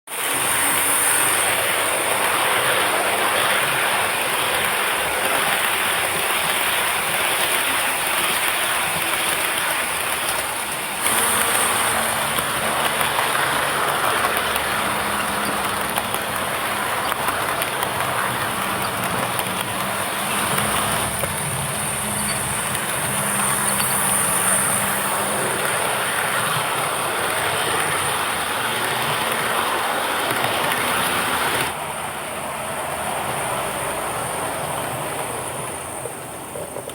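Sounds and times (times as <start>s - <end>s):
model train rolling on track: 0.1s - 36.9s
steam locomotive sound: 0.1s - 36.9s.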